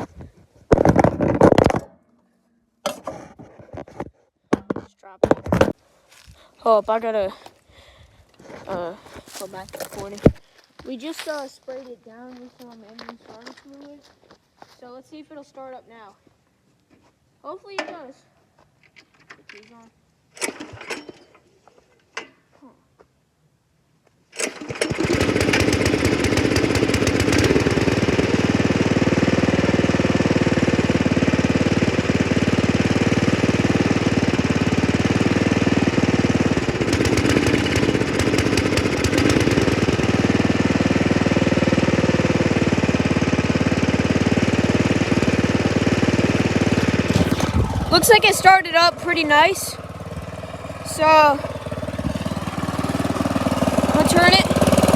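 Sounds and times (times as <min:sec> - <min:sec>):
tractor engine starting and running: 0:00.0 - 0:02.2, 0:08.4 - 0:10.4, 0:18.8 - 0:21.5, 0:24.3 - 0:54.9.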